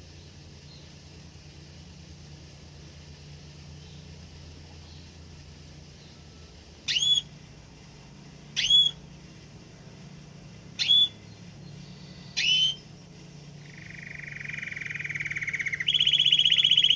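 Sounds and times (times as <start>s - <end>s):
faint low hum: 0.0s - 16.9s
songbird upward whistled calls: 6.0s - 7.4s, 8.5s - 9.1s, 10.8s - 12.9s, 13.6s - 16.9s.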